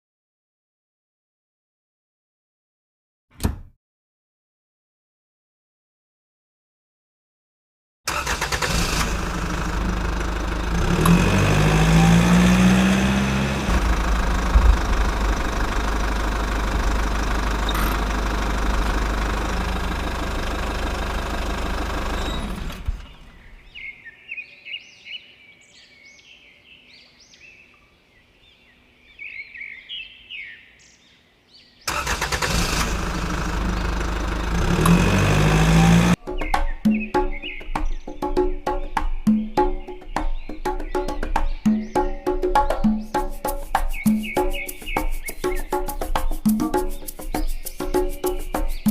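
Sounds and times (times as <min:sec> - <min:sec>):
engine running: 0:08.1 - 0:23.5, 0:31.9 - 0:36.2
birds chirping: 0:11.7 - 0:32.0, 0:33.5 - 0:48.9.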